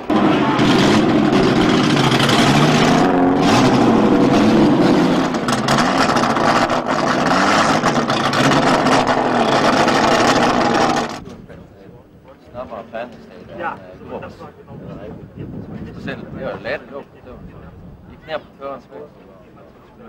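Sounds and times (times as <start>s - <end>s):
race car engine revving: 0.0s - 11.2s.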